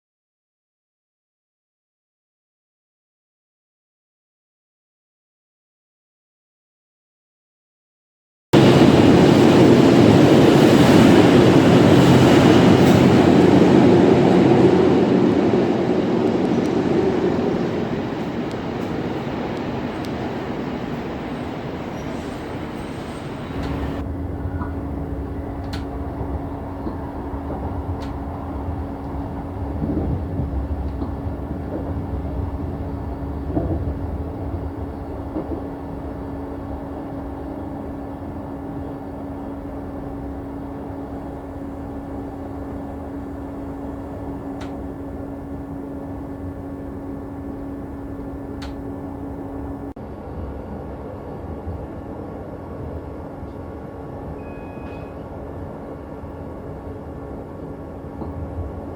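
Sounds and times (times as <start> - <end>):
low rumble: 8.6 - 50.0
train running hum: 8.6 - 58.9.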